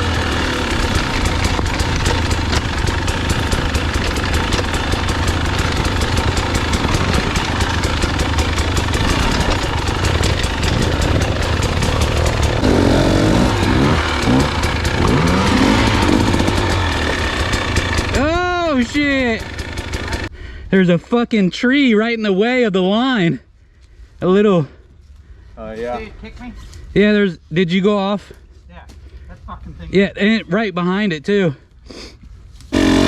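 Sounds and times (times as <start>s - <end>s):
dirt bike engine revving: 0.0s - 20.3s, 32.7s - 33.0s.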